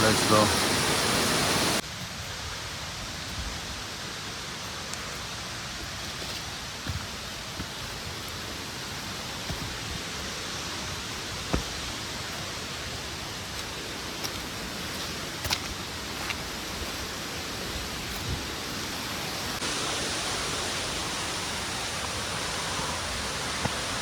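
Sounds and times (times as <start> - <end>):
waterfall rushing: 0.0 - 1.8, 8.3 - 24.0.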